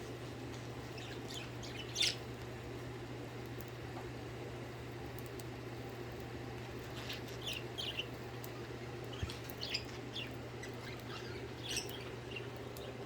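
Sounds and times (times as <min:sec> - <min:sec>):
steady low hum: 0:00.0 - 0:13.0
budgerigars chirping: 0:01.0 - 0:02.2, 0:09.1 - 0:12.5.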